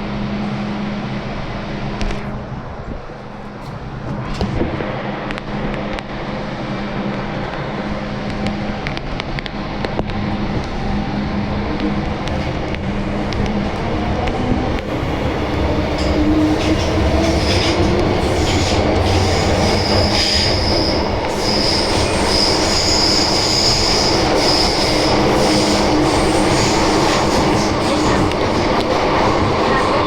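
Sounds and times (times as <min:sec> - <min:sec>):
train wheels rumbling on rail: 0:00.0 - 0:30.0
high wheel squeal: 0:15.0 - 0:28.2.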